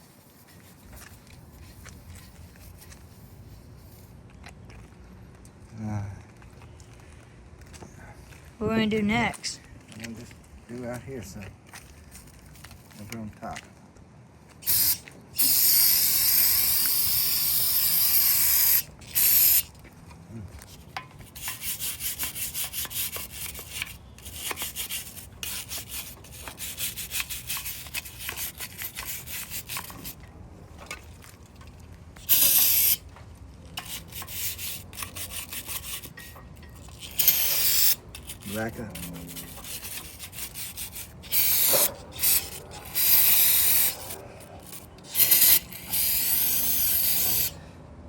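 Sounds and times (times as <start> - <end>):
aerosol spray hissing: 14.6 - 19.7, 32.2 - 33.0, 37.0 - 38.0, 39.6 - 47.6
scrubbing strokes on metal: 20.6 - 31.1, 33.8 - 47.6.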